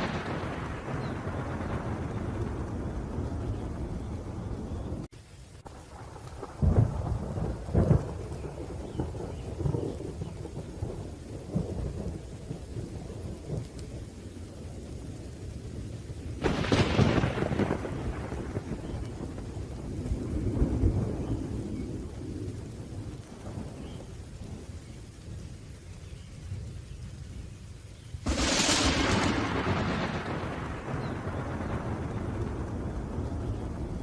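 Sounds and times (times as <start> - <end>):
sharp thunderclap: 0.0 - 5.1, 5.8 - 13.8, 16.4 - 24.6, 28.2 - 34.0
rain: 0.0 - 34.0
rumble of thunder: 0.0 - 34.0.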